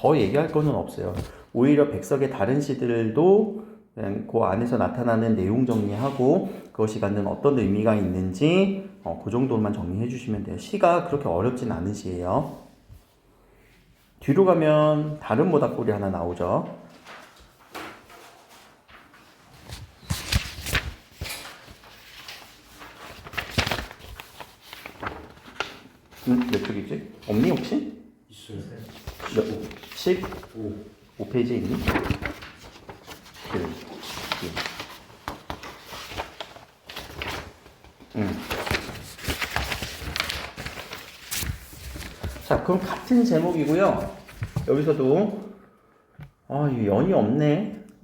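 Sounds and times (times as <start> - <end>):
paper pages flipping: 0.2 - 1.5, 16.9 - 27.8, 28.8 - 44.9.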